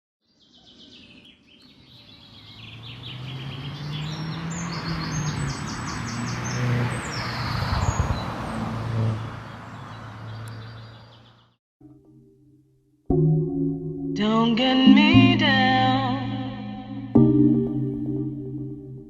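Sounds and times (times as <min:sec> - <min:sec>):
birds chirping: 0:00.2 - 0:11.6.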